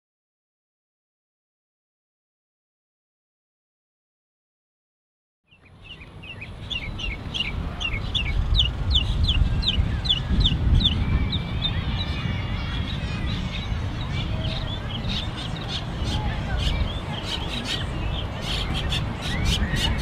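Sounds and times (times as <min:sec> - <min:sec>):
downward-sweeping bird chirps: 0:05.5 - 0:20.0
other bird calls: 0:05.5 - 0:20.0
steady low rumble: 0:05.8 - 0:20.0.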